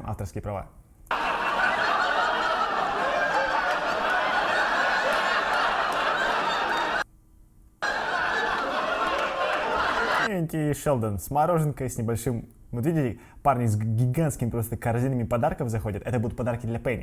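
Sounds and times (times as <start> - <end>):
audience laughter: 1.1 - 7.0, 7.8 - 10.3.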